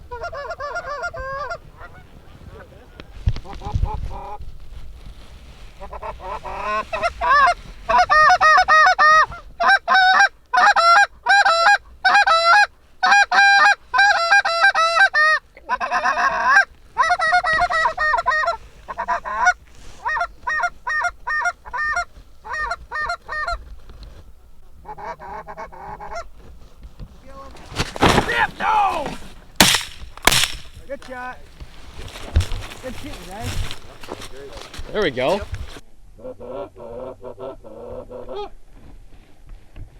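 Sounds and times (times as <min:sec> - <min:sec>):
goose honking and clucking: 0:00.0 - 0:04.4, 0:05.8 - 0:23.6, 0:24.6 - 0:26.4.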